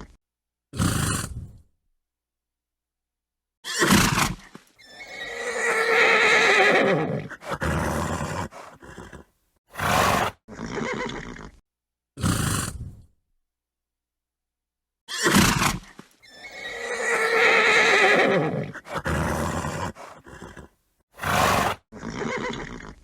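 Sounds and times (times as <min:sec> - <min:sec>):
horse snorting: 0:00.8 - 0:01.6, 0:03.8 - 0:11.6, 0:12.2 - 0:13.0, 0:15.2 - 0:23.0
horse neighing: 0:03.6 - 0:11.6, 0:15.1 - 0:23.0.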